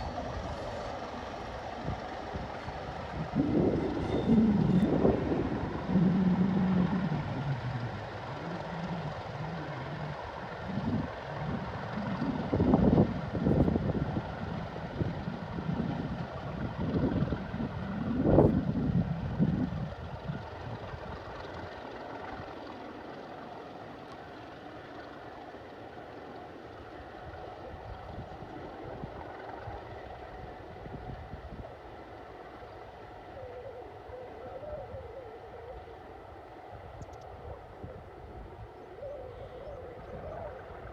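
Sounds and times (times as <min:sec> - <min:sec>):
faint wavering tone: 0:00.0 - 0:12.6, 0:33.2 - 0:40.9
locomotive rumbling: 0:00.0 - 0:13.4
locomotive engine humming: 0:00.0 - 0:40.9.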